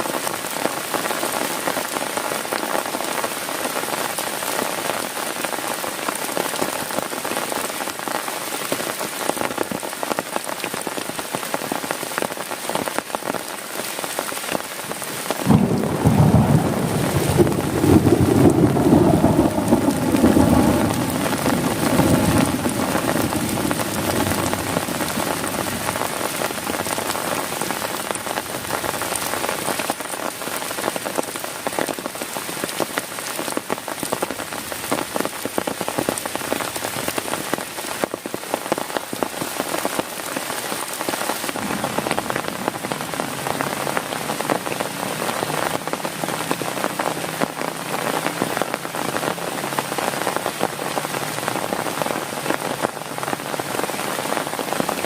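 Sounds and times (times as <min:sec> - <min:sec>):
heavy rain on a tent: 0:00.0 - 0:55.0
thunder rumble: 0:15.4 - 0:28.2, 0:41.5 - 0:45.8.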